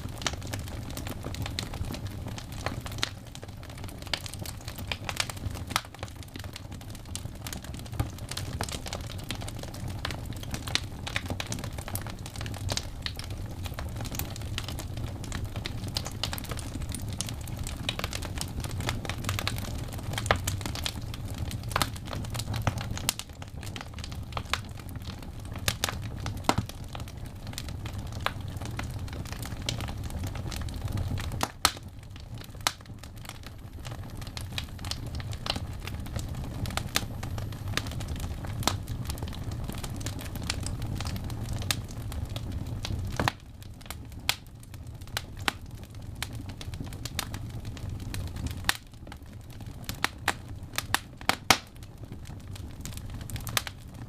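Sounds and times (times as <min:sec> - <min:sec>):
wood fire crackling and popping: 0:00.0 - 0:54.0
steady low rumble: 0:33.3 - 0:41.6.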